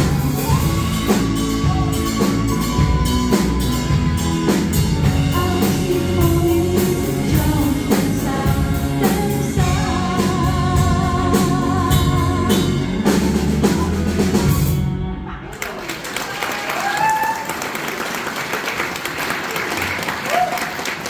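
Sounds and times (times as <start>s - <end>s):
drum kit: 0.0s - 15.2s
live pop band playing: 0.0s - 15.5s
woman singing: 5.0s - 13.3s.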